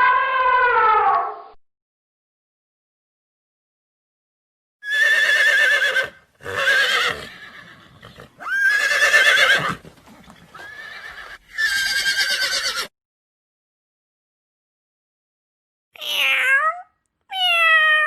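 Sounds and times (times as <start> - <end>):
horse whinnying: 4.8 - 12.9.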